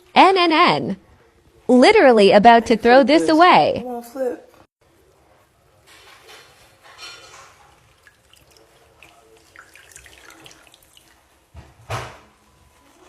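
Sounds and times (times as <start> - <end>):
water dripping: 7.6 - 11.4
thump: 11.6 - 12.3.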